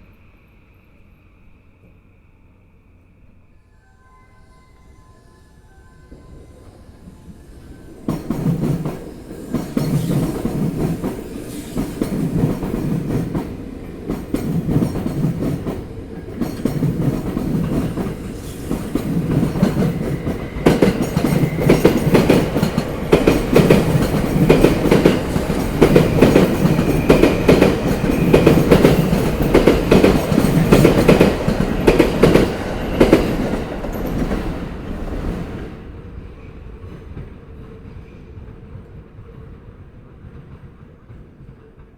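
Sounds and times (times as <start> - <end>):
train wheels clickety-clack: 8.0 - 35.7, 36.7 - 41.9.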